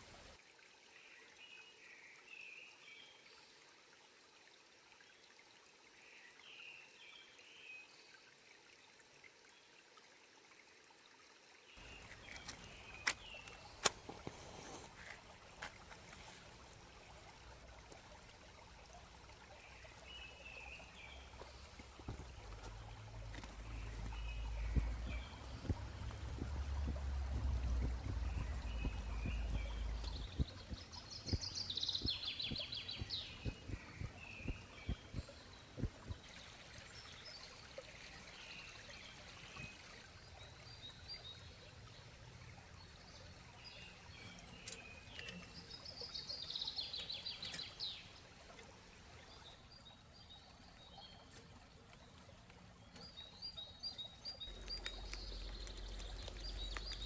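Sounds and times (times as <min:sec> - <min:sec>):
bird chirps: 0:11.8 - 0:35.9, 0:52.9 - 0:57.0
birds singing: 0:11.8 - 0:57.0.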